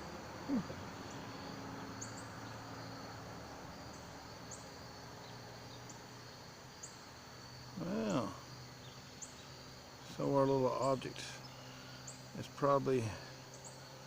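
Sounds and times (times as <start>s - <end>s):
insect chirps: 0.0s - 14.0s
insect high trill: 0.0s - 14.0s.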